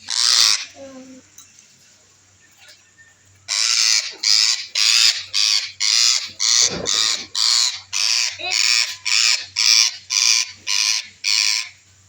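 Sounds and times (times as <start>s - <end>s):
parrot screeching: 0.1s - 0.7s, 3.5s - 11.7s.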